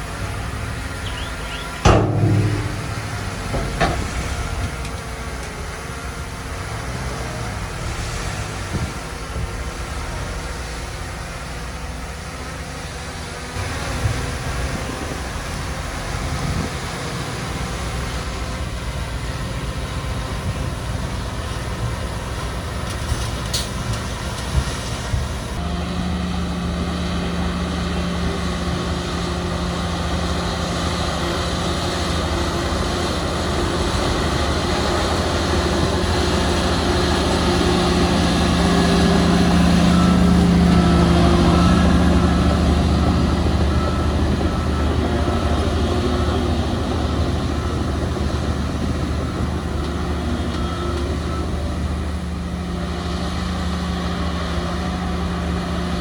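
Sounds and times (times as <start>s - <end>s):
diesel engine under load: 0.0s - 56.0s
short metallic knocks: 1.0s - 5.0s.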